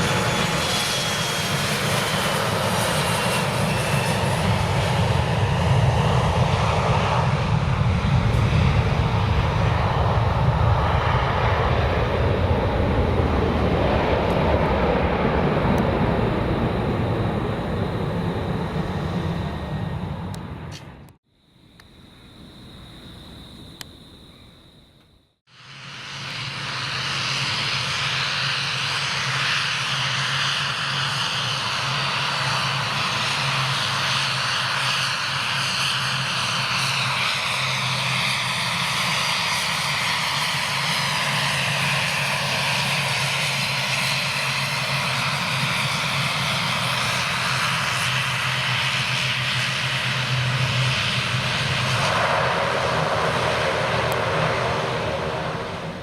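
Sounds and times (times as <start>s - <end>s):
airliner engines roaring: 0.0s - 21.2s, 25.5s - 56.0s
low hum: 7.9s - 25.3s.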